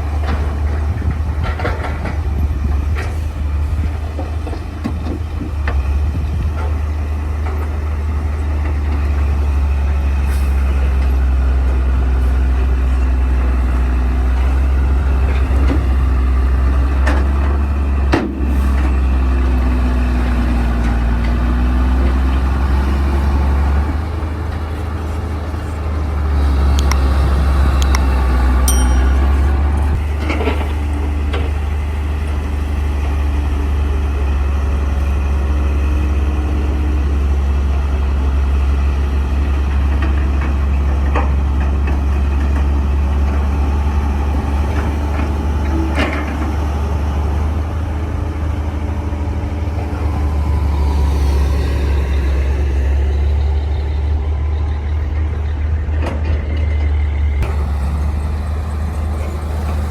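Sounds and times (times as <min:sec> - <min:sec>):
bulldozer diesel engine rumbling: 0:00.0 - 0:59.9
sharp metallic clanks: 0:28.6 - 0:30.1.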